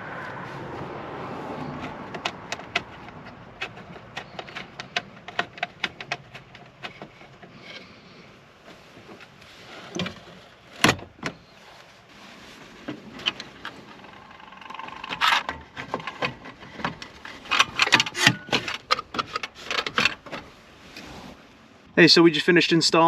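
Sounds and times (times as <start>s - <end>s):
car parts clicking and knocking: 1.5s - 11.5s, 12.8s - 20.5s.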